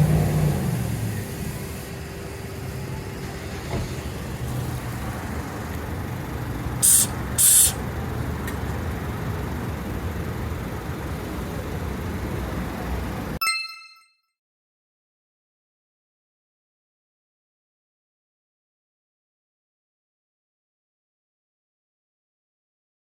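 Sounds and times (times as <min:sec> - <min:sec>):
vehicle engine rumbling: 0:00.0 - 0:13.4
loud short hisses: 0:06.8 - 0:07.8.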